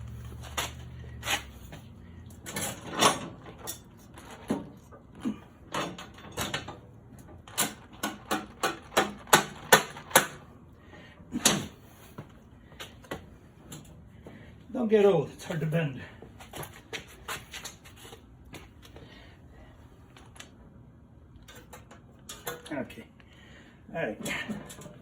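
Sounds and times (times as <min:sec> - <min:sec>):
metal clicks and knocks of tools: 0:21.4 - 0:22.7.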